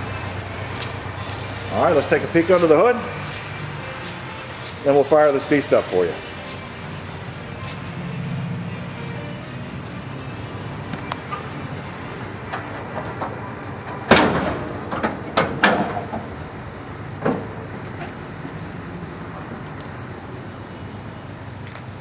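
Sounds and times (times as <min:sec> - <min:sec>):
car hood metallic clank: 0:12.5 - 0:16.3
sharp clicks and knocks: 0:12.5 - 0:16.3.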